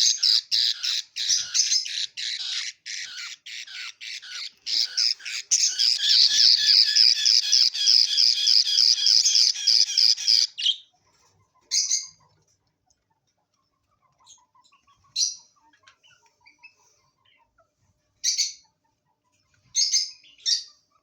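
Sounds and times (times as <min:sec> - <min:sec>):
budgerigars calling harshly: 0:00.0 - 0:10.8
budgerigar squawks: 0:00.0 - 0:10.9
soft bird chirps: 0:00.0 - 0:21.0.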